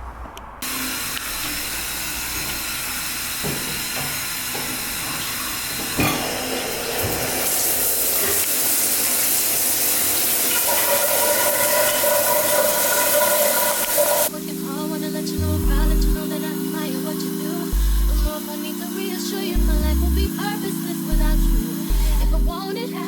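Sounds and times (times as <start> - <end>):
running water hissing: 0.6 - 14.3
music: 14.3 - 23.0.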